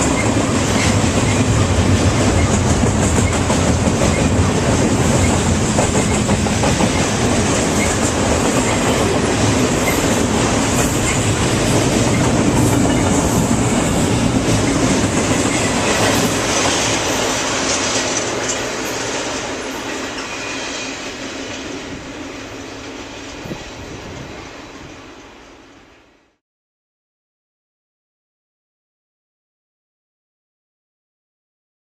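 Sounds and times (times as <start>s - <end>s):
train wheels clacking over rail joints: 0.0s - 25.4s.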